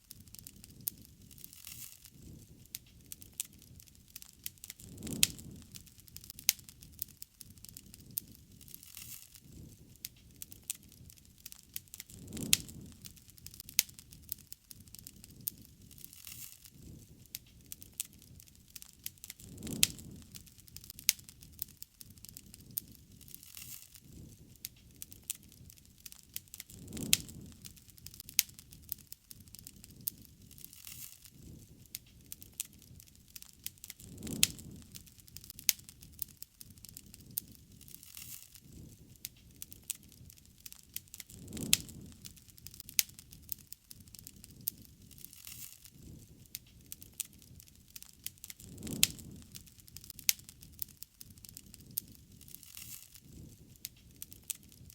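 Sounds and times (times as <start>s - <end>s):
low rumble of flame: 0.0s - 54.9s
wood fire crackling and popping: 0.0s - 54.9s.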